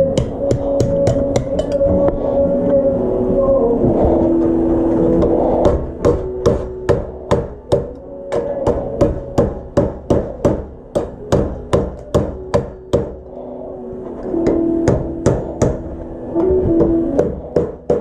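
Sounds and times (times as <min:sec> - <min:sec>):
hammer striking metal plate: 0:00.1 - 0:01.8, 0:05.2 - 0:13.2, 0:14.4 - 0:15.9.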